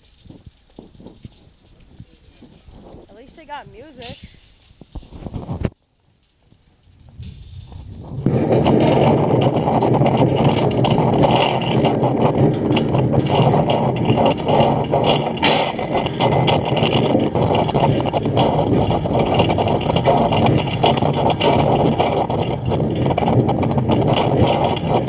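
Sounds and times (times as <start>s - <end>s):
generator engine running: 7.6s - 25.0s.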